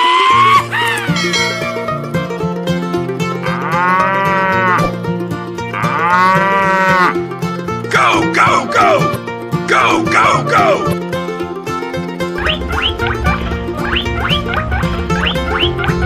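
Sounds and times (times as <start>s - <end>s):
background music: 0.0s - 16.0s
cow mooing: 3.4s - 4.9s, 5.7s - 7.2s.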